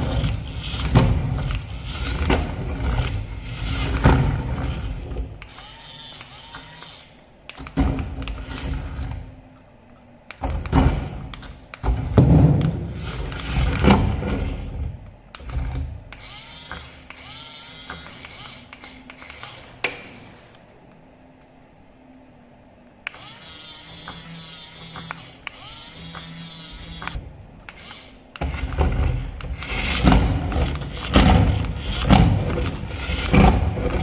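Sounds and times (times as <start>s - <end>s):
toy car electric motor whirring: 0.0s - 7.2s, 15.4s - 19.8s, 23.1s - 34.0s.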